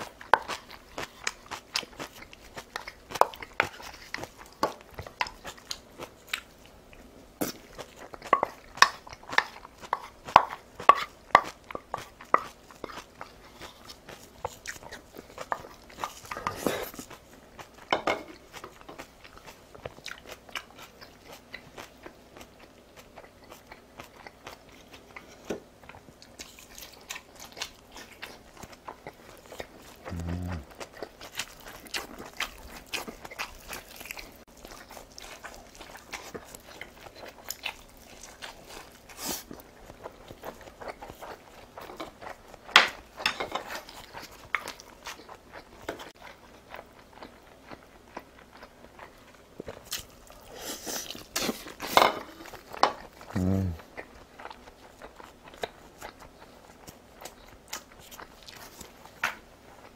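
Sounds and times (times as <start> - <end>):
wet chewing with crunches: 0.0 - 59.9
closed-mouth hum: 30.0 - 30.7, 53.3 - 53.9.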